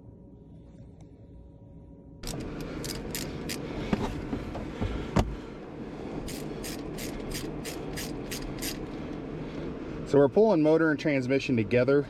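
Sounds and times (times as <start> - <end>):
ratchet wrench clicking: 2.2 - 3.6, 6.2 - 8.9.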